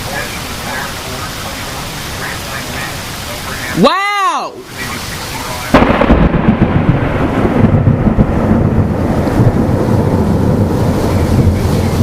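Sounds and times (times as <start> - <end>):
heavy wind-driven rain: 0.0 - 12.0
thunderclap rumbling: 4.8 - 12.0.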